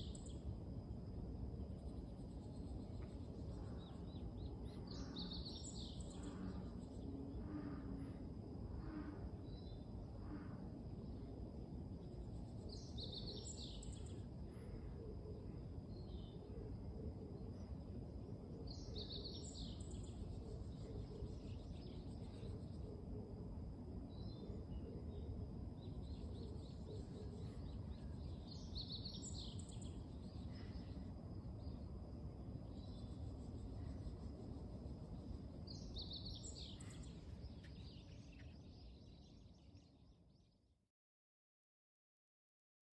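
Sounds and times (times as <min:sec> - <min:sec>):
bird singing: 0:00.0 - 0:00.6, 0:01.6 - 0:11.4, 0:12.0 - 0:23.4, 0:24.0 - 0:40.7
low background rumble: 0:00.0 - 0:40.5
bird chirping: 0:24.1 - 0:31.0, 0:32.6 - 0:40.5.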